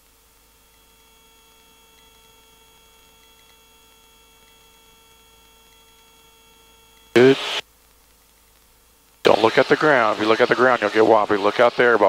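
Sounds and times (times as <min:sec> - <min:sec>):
faint helicopter rotor and engine: 0:00.0 - 0:12.0
faint steady multi-tone hum: 0:00.0 - 0:12.0
faint ticks: 0:07.8 - 0:09.2.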